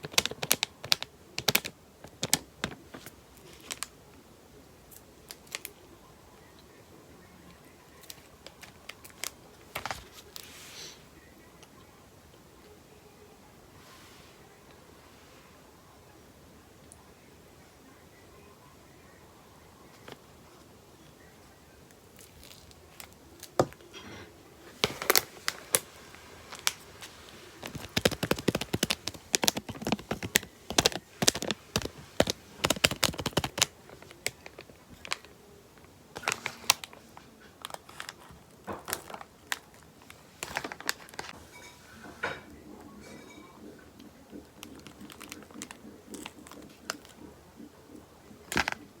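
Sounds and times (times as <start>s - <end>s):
crinkling and clicking handling: 0.0s - 4.2s, 4.9s - 5.8s, 6.4s - 10.5s, 19.9s - 21.3s, 21.9s - 49.0s.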